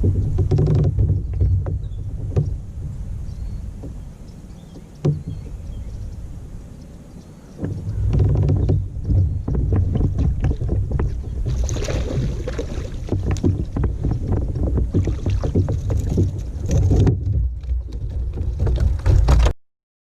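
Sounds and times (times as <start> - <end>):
short knocks: 0.0 - 2.6, 4.7 - 5.5, 7.6 - 19.5
wind rumbling on microphone: 0.0 - 19.5.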